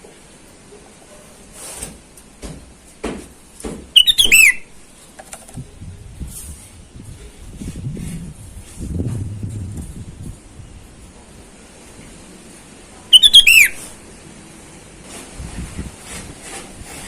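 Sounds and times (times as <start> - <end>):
bird whistling rapid notes: 4.0 - 4.7, 13.1 - 13.9.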